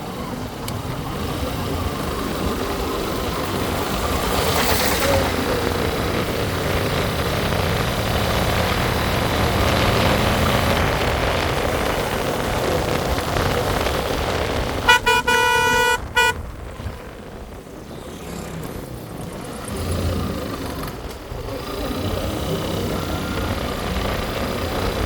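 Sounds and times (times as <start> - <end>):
road and wind noise: 0.0 - 25.0
vehicle horn beeping: 14.8 - 16.4.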